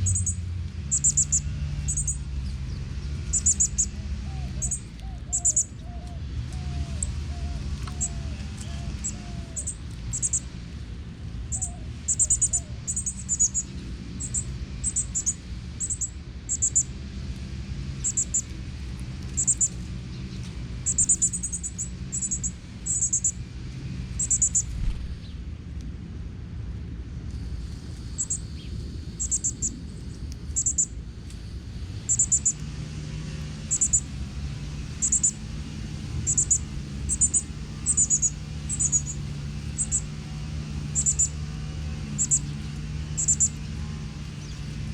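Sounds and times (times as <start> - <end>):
high thin bird chirps: 0.0 - 2.3, 3.3 - 6.1, 6.7 - 10.5, 11.5 - 16.9, 20.8 - 23.4, 24.2 - 25.3, 29.2 - 29.8, 30.6 - 31.0, 33.7 - 34.1, 35.0 - 35.4, 36.3 - 43.6
steady low rumble: 0.0 - 44.9.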